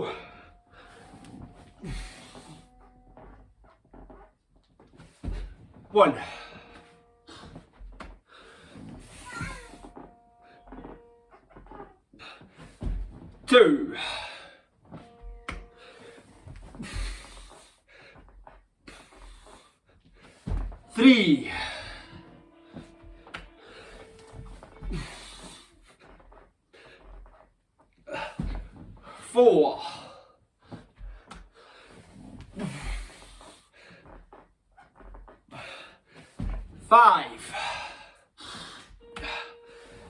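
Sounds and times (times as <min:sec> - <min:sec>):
person breathing heavily: 0:00.0 - 0:02.8, 0:08.2 - 0:09.7, 0:13.9 - 0:14.7
hands and feet knocking on floor: 0:03.1 - 0:11.8, 0:12.4 - 0:13.4, 0:14.9 - 0:18.6, 0:20.3 - 0:20.9, 0:21.5 - 0:26.4, 0:28.2 - 0:29.0, 0:36.2 - 0:36.8.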